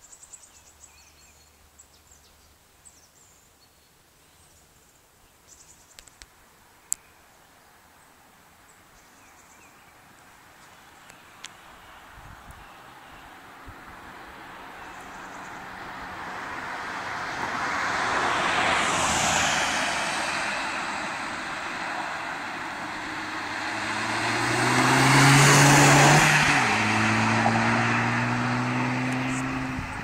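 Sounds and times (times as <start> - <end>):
car engine accelerating past: 14.0 - 30.0
tyre and wind rush: 29.4 - 30.0.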